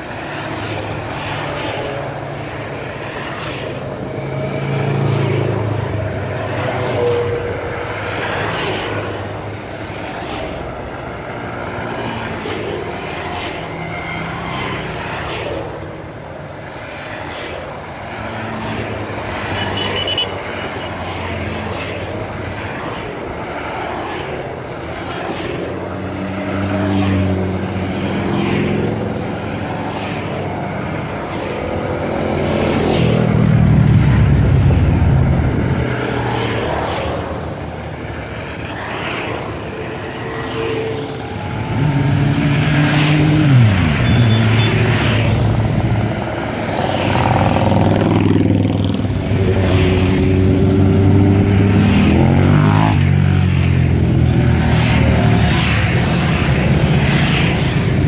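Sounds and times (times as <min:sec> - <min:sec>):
motorcycle engines running: 0:40.8 - 0:58.0.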